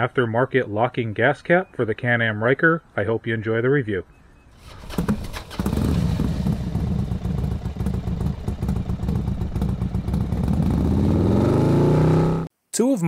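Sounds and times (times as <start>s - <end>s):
motorcycle engine pulsing: 4.6s - 12.5s.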